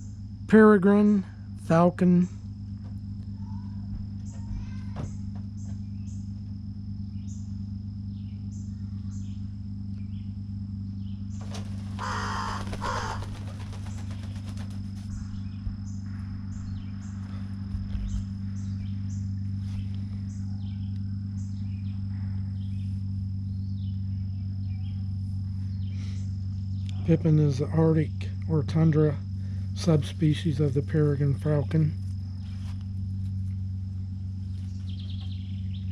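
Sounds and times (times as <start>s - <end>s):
insects chirping: 0.0s - 35.9s
low steady hum: 0.0s - 35.9s
harsh bird calls: 10.1s - 23.0s, 34.4s - 35.9s.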